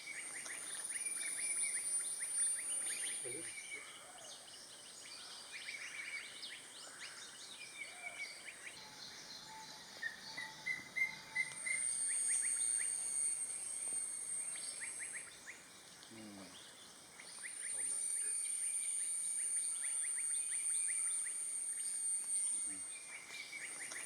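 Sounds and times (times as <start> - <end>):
high insect drone: 0.0 - 24.0
barbets calling: 14.4 - 24.0.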